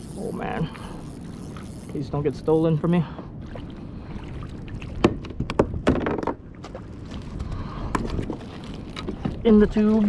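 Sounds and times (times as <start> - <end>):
knocks against a kayak: 5.0 - 6.8.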